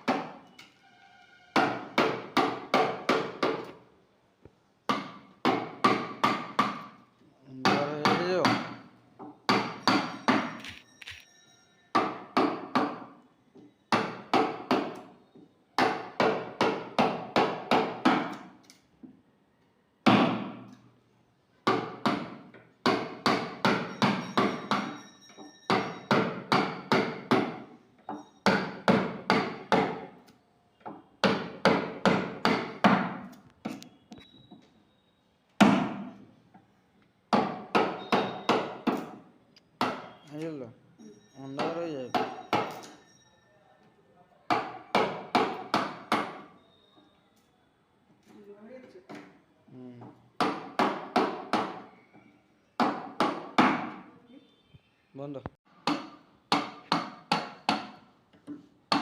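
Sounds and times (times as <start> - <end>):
hammer striking wood chisel: 0.0 - 0.4, 1.5 - 3.8, 4.9 - 7.0, 7.6 - 10.8, 11.9 - 13.2, 13.9 - 15.2, 15.8 - 18.6, 20.0 - 20.8, 21.6 - 33.9, 35.6 - 36.2, 37.3 - 39.2, 39.8 - 40.5, 41.5 - 43.0, 44.5 - 46.6, 50.4 - 51.9, 52.8 - 54.1, 55.7 - 59.0.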